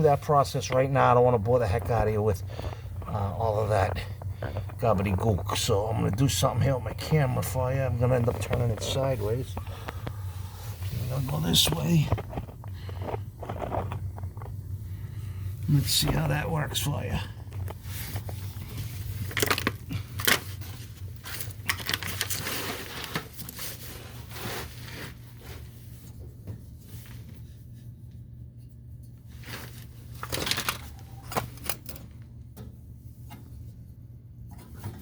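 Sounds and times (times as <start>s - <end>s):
steady low hum: 0.0s - 35.0s
hands handling equipment: 17.5s - 25.7s, 29.4s - 32.1s.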